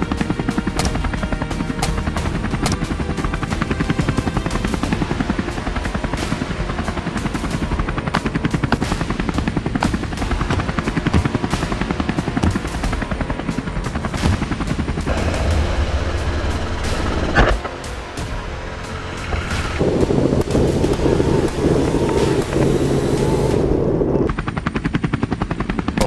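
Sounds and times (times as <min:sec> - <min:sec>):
helicopter rotor chop: 0:00.0 - 0:26.0.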